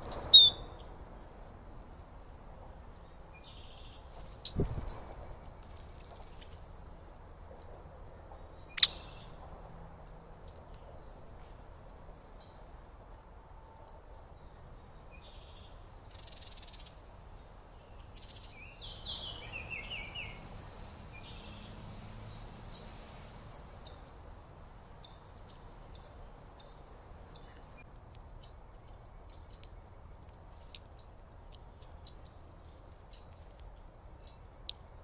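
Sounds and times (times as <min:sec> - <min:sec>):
birds chirping: 0:00.0 - 0:01.7, 0:03.0 - 0:07.3, 0:07.9 - 0:09.6.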